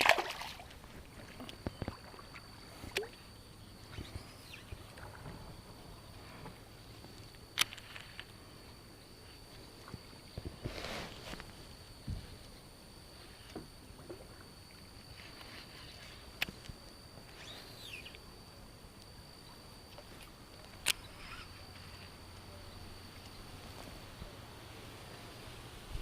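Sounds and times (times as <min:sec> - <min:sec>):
water moving softly: 0:00.0 - 0:16.3
thin steady high tone: 0:11.2 - 0:25.8.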